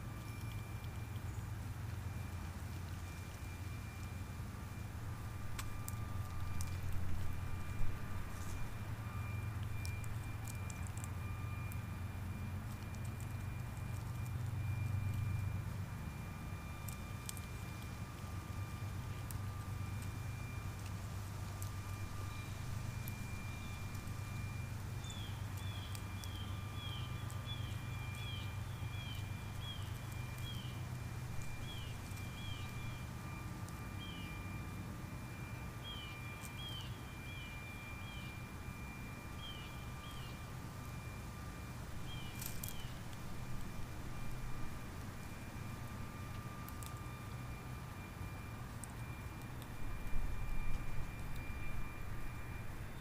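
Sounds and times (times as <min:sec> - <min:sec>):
low background hum: 0:00.0 - 0:53.0
small bird chirping: 0:25.0 - 0:30.8, 0:31.5 - 0:33.0, 0:35.8 - 0:38.4, 0:39.4 - 0:40.4, 0:42.0 - 0:43.0.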